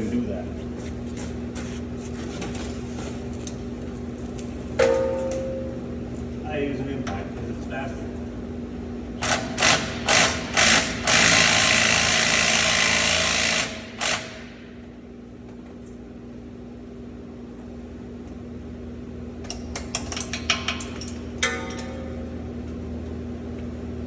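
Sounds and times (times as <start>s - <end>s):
impact wrench hammering: 19.5s - 22.2s.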